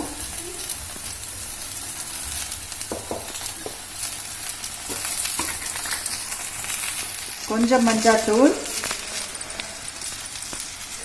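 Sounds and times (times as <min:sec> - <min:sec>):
okra sizzling in oil: 0:00.0 - 0:11.0
spoon scraping a pan: 0:03.0 - 0:11.0.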